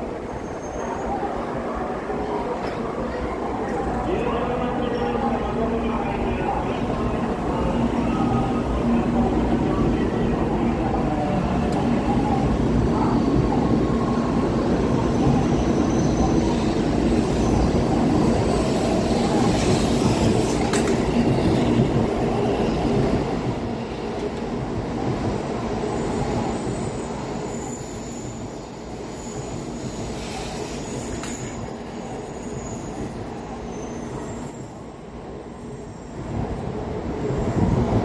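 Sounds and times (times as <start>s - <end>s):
faint high brake squeal: 0.2s - 1.3s, 15.1s - 16.6s, 32.2s - 34.8s.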